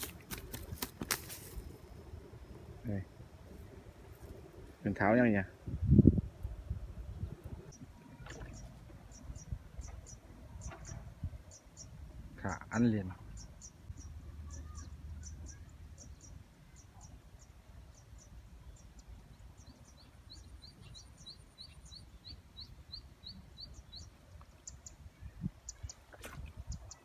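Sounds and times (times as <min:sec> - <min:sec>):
small birds chirping: 0:06.7 - 0:27.0.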